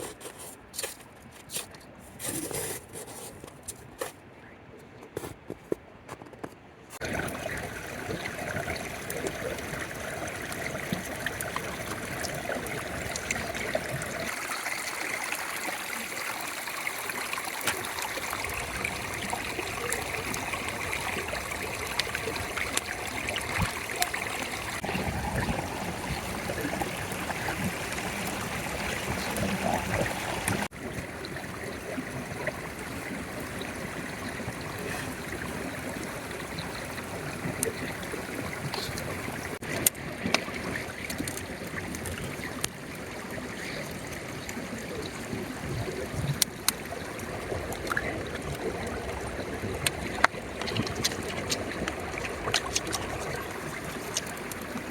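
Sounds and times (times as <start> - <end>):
light scrapes: 0.0 - 4.2
stream flowing: 7.0 - 54.9.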